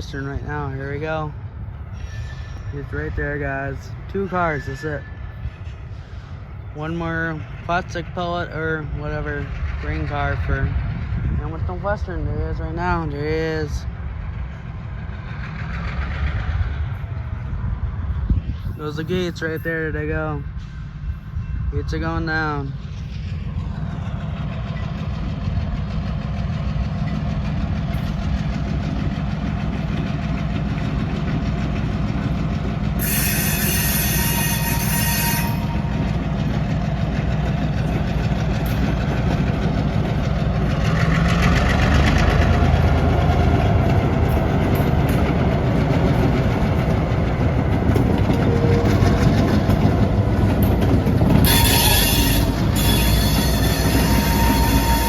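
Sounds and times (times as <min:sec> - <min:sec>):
diesel locomotive engine rumble: 0:00.0 - 0:55.0.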